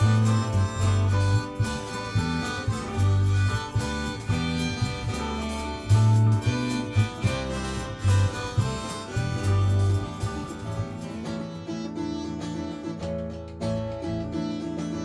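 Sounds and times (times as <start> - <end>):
drums: 0.0 - 15.0
electric bass notes: 0.0 - 15.0
guitars: 0.0 - 15.0.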